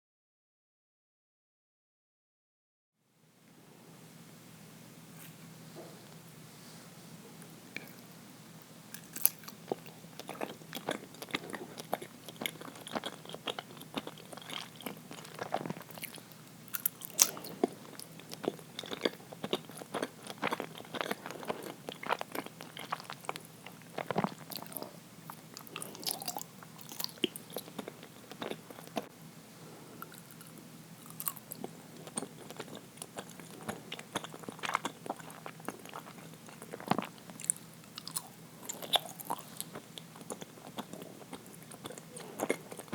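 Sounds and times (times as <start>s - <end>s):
person chewing sticky food: 8.9s - 29.1s, 30.0s - 42.9s.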